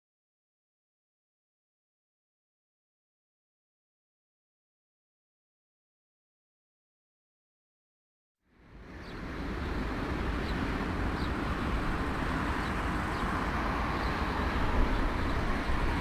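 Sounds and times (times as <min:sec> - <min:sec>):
moving vehicle rumble: 0:08.6 - 0:16.0.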